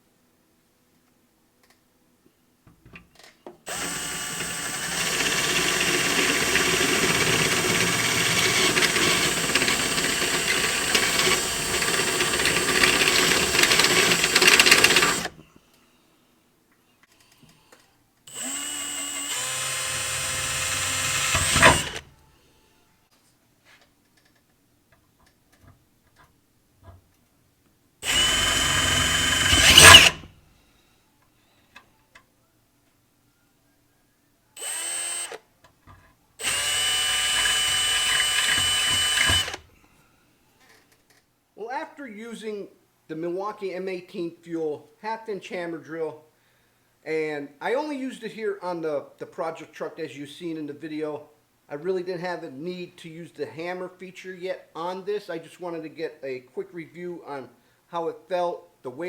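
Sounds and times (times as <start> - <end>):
cordless drill drilling: 3.7 - 15.4, 18.3 - 22.1, 28.0 - 30.3, 34.6 - 35.4, 36.4 - 39.7.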